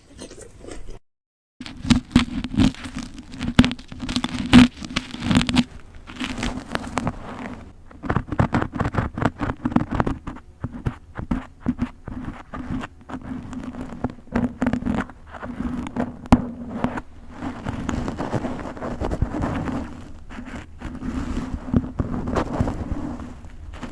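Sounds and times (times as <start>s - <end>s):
plastic wrappers crinkling: 1.6s - 7.7s.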